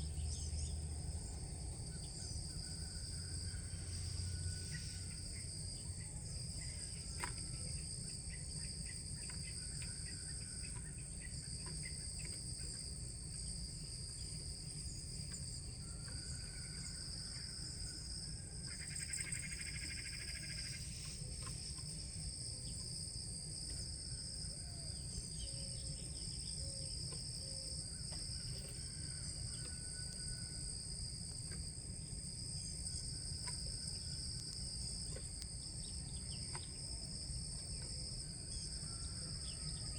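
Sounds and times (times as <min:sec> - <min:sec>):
crickets droning: 0:00.0 - 0:39.9.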